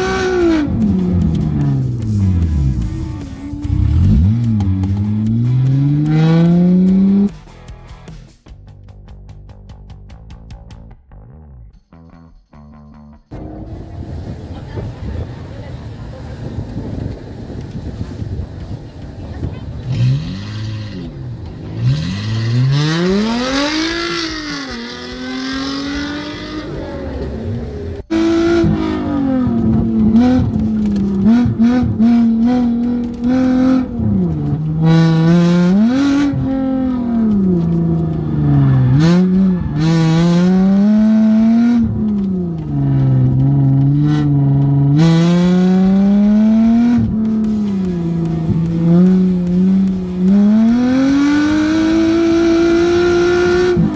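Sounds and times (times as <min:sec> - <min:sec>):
car engine revving: 0:00.0 - 0:08.0, 0:18.7 - 0:53.9
car engine running hard in cabin: 0:13.3 - 0:53.9.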